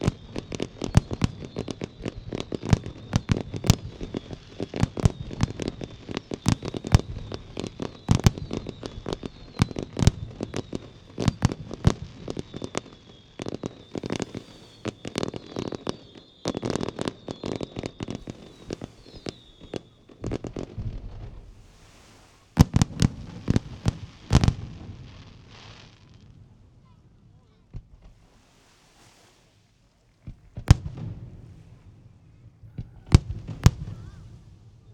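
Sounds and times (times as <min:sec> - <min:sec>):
high firework whistle: 0:00.0 - 0:24.7, 0:28.1 - 0:29.7, 0:30.4 - 0:34.9
firework bursts and crackles: 0:00.0 - 0:34.9
heavy firework bangs: 0:17.2 - 0:25.5, 0:30.2 - 0:34.9.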